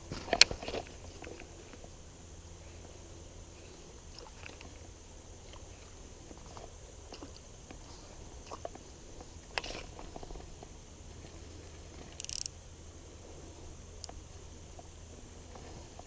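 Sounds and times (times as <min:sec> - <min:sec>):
river water sloshing: 0:00.0 - 0:16.0
clicks and ticks: 0:12.1 - 0:12.5.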